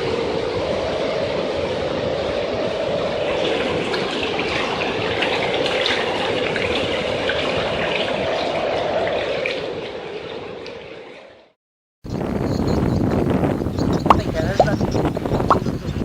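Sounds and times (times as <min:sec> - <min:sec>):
storm wind rushing: 0:00.0 - 0:11.4, 0:12.0 - 0:16.0
rushing water: 0:00.0 - 0:11.6.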